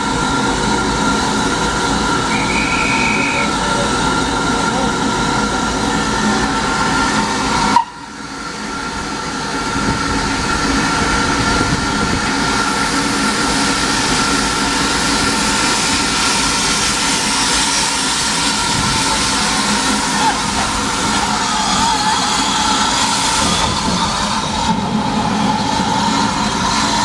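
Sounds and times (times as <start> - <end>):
steam hissing: 0.0 - 27.0
thin whistle-like tone: 2.3 - 3.5.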